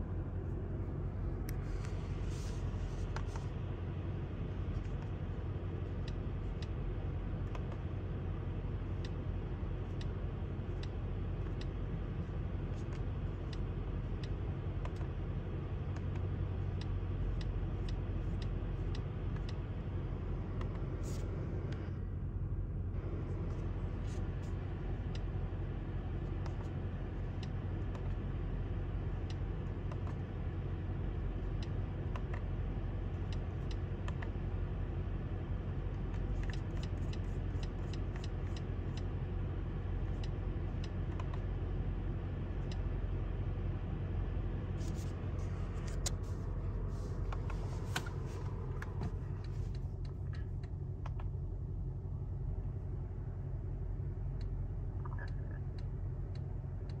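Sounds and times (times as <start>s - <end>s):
car engine idling: 0.0s - 57.0s
light clicks and taps: 26.2s - 34.5s, 35.7s - 41.6s, 44.7s - 51.4s.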